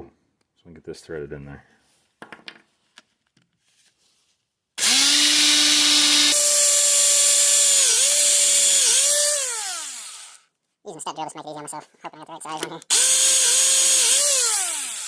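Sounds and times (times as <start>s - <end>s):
electric drill running: 4.8s - 10.4s, 12.9s - 15.0s.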